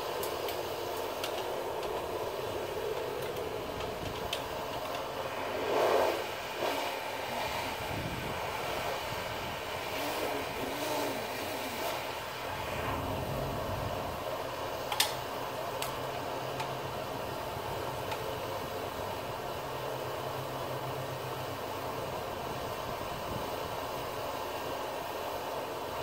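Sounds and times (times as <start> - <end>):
faint clicks: 0.2 - 2.1
mechanical rushing noise: 3.5 - 15.6.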